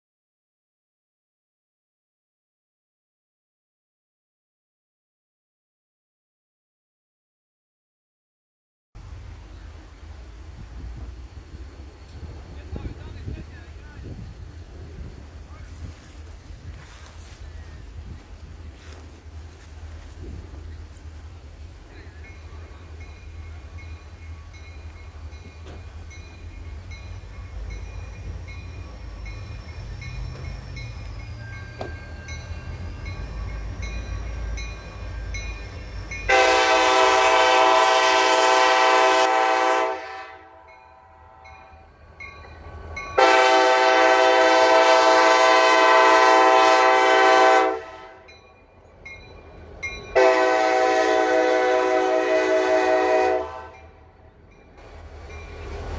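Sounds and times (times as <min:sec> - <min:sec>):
locomotive engine rumble: 0:09.0 - 0:55.9
locomotive air horn: 0:36.3 - 0:41.6, 0:43.2 - 0:48.3, 0:50.1 - 0:54.0.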